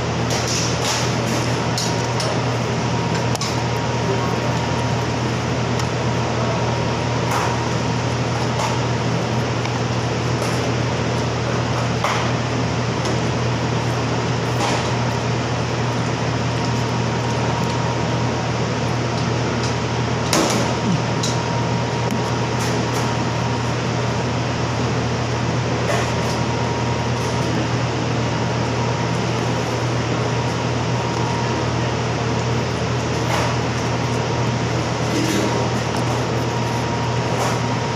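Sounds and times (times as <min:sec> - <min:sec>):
whirring machine hum: 0:00.0 - 0:37.9.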